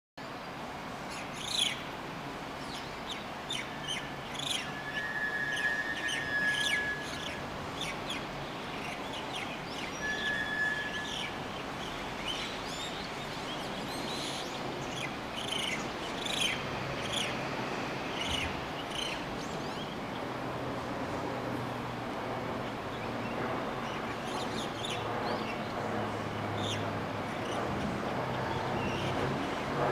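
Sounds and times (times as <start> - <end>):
bird whistles: 3.5 - 8.0, 9.8 - 11.4.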